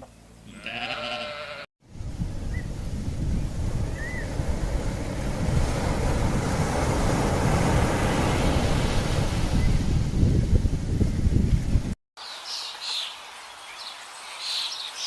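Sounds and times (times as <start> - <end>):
wind buffeting microphone: 1.8 - 12.0.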